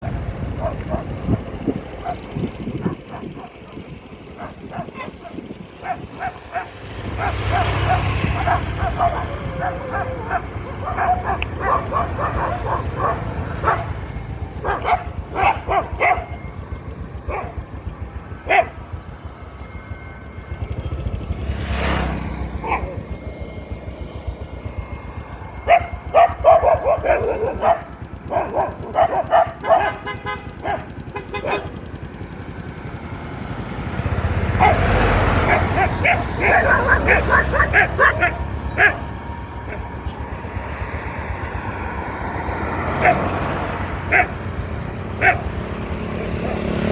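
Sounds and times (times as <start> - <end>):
dogs barking: 0.0 - 46.9
traffic rumble: 0.0 - 46.9
vehicle passing close: 0.0 - 46.9.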